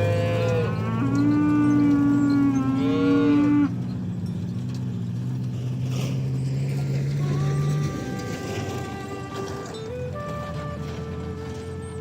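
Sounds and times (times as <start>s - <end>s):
ox mooing: 0.0s - 4.0s, 6.7s - 9.8s.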